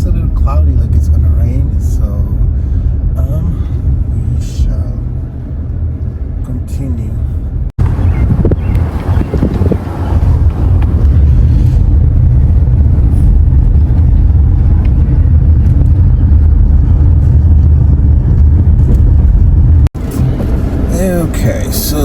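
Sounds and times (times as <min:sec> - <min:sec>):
car driving slowly: 0:00.0 - 0:22.0.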